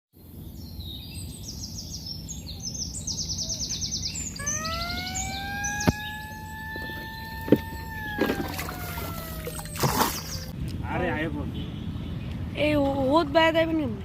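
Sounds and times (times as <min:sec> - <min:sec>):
small birds chirping: 0:00.2 - 0:10.6
droning tone rising in pitch: 0:04.4 - 0:10.6.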